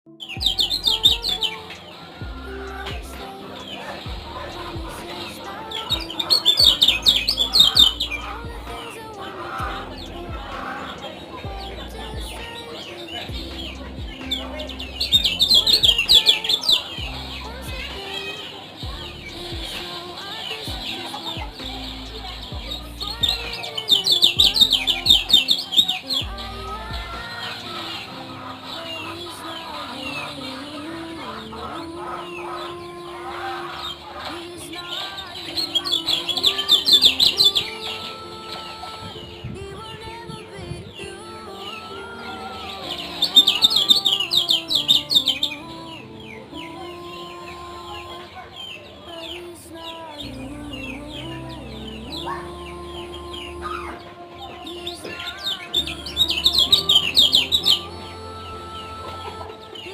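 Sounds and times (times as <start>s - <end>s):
bird chirping high falling notes: 0.1s - 30.6s.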